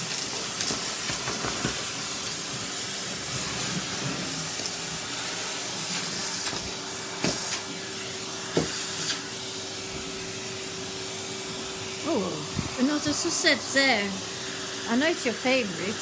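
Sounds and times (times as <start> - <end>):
vacuum cleaner rushing air: 0.0 - 16.0
steady hum: 9.8 - 16.0.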